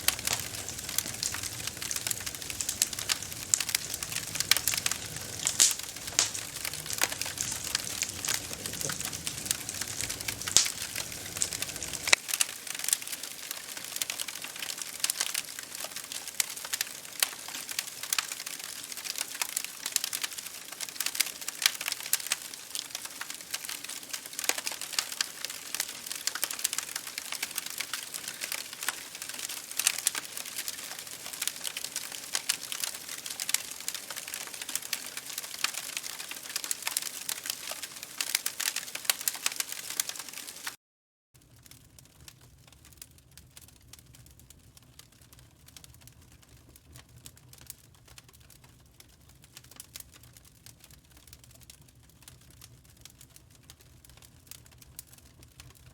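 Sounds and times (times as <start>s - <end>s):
campfire crackling: 0.0s - 40.8s, 41.4s - 55.9s.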